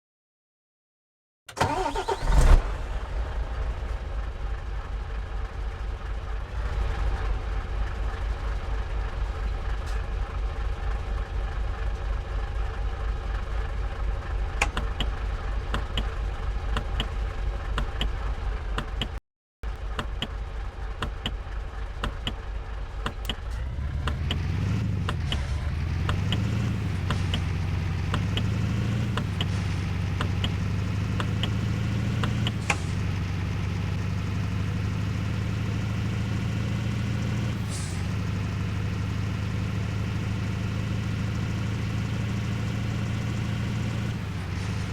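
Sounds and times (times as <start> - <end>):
vehicle engine running: 1.6 - 44.9.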